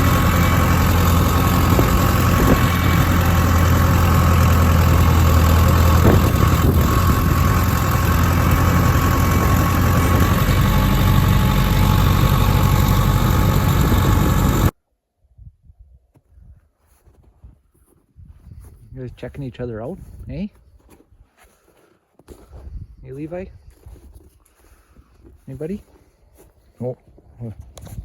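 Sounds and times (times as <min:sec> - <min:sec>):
diesel engine idling: 0:00.0 - 0:14.7.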